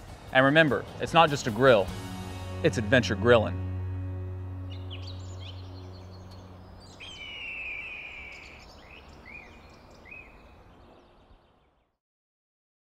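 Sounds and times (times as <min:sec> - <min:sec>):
outdoor ambience: 0:00.0 - 0:12.0
bird calls: 0:04.6 - 0:11.9.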